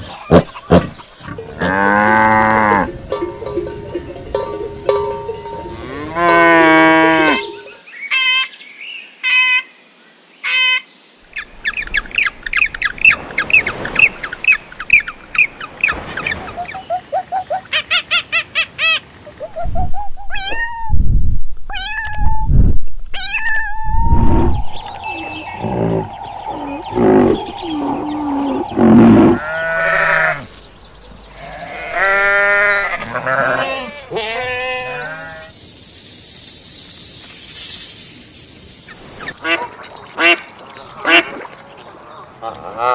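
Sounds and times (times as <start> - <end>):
animal calls: 23.2 - 30.6.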